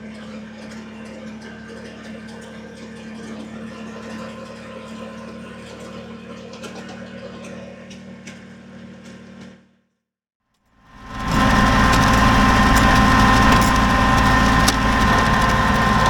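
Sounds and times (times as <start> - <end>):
diesel tractor engine running: 10.9 - 16.0.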